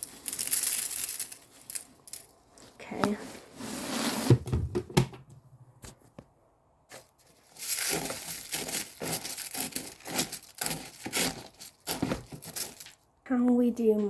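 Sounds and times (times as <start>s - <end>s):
cornflakes rustling and crunching: 0.0s - 2.4s, 6.9s - 13.0s.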